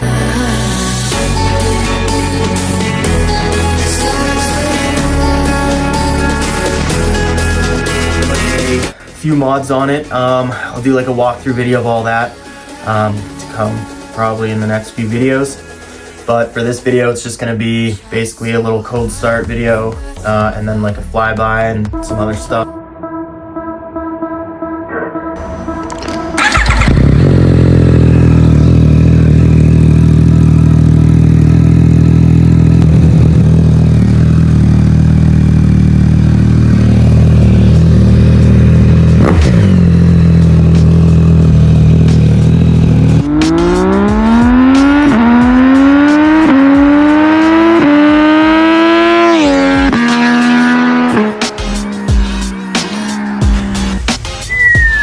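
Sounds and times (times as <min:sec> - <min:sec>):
motorcycle engine revving: 0:00.0 - 0:09.0, 0:25.4 - 0:55.0.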